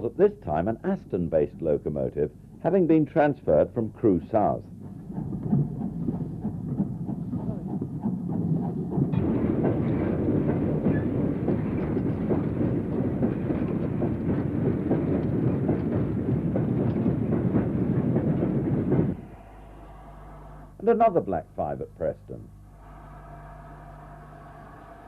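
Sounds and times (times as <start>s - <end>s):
steam train clattering on rails: 0.0s - 19.5s.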